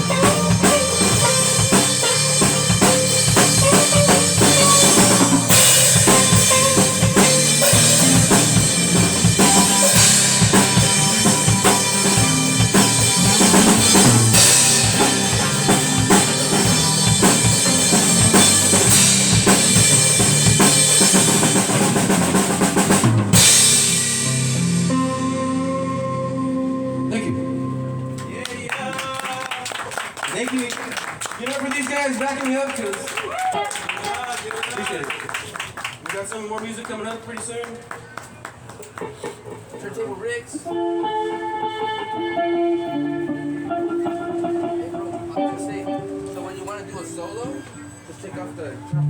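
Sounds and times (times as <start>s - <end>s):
drum kit: 0.0s - 26.4s
live band playing: 0.0s - 30.2s, 40.5s - 49.0s.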